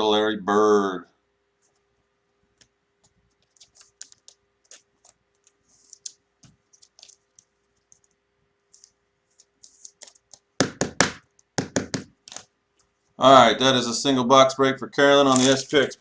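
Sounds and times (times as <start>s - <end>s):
soft rustles of cards: 1.5s - 10.6s, 12.2s - 13.2s, 15.2s - 16.0s
cards clicking: 3.4s - 10.5s, 12.2s - 12.9s, 15.3s - 16.0s.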